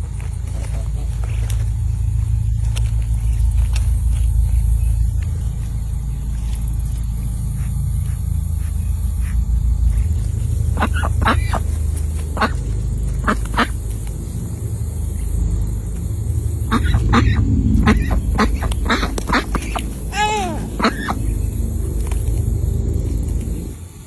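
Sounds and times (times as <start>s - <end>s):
steady low rumble: 0.0s - 24.0s
ducks quacking: 7.6s - 13.8s, 16.6s - 21.5s.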